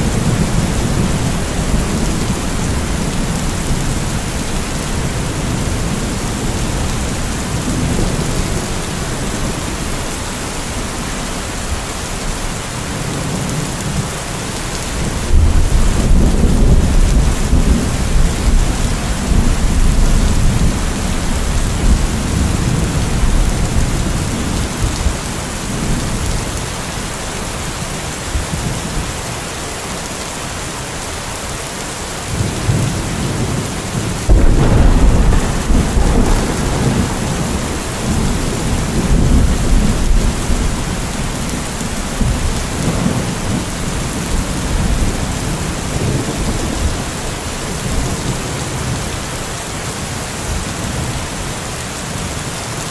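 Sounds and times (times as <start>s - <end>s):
rolling thunder: 0.0s - 10.4s, 14.8s - 26.6s, 32.3s - 49.0s
steady rain: 0.0s - 52.9s
loud thunderclap: 15.0s - 26.2s, 32.6s - 47.2s.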